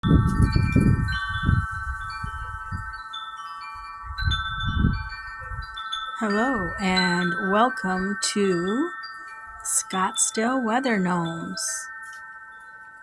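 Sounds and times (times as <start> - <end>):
wind gusts on microphone: 0.0 - 10.0
metal wind chimes ringing: 0.0 - 13.0.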